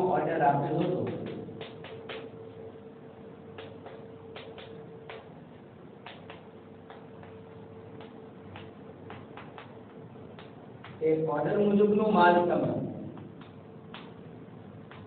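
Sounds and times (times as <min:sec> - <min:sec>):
chalk tapping on blackboard: 0:00.8 - 0:02.3, 0:03.5 - 0:05.3, 0:06.0 - 0:11.1, 0:13.1 - 0:14.2, 0:14.8 - 0:15.0.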